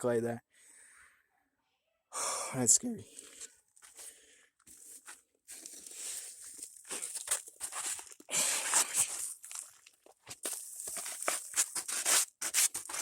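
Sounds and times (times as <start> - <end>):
footsteps crunching on dry dirt: 3.2 - 13.0.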